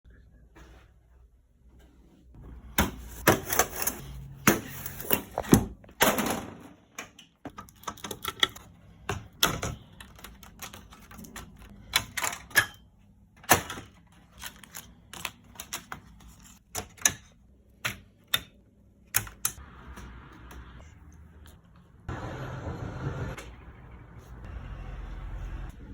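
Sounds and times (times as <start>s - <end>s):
clicks and knocks of small tools: 7.0s - 8.7s.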